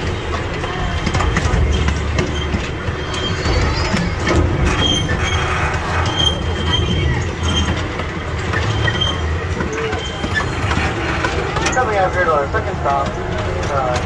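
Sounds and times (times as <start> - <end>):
high wheel squeals: 0.0 - 12.5
miniature train wheels rumbling: 0.0 - 14.0.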